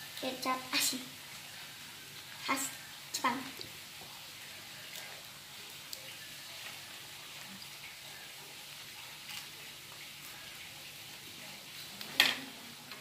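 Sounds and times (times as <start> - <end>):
noodles sizzling in a wok: 0.0 - 13.0.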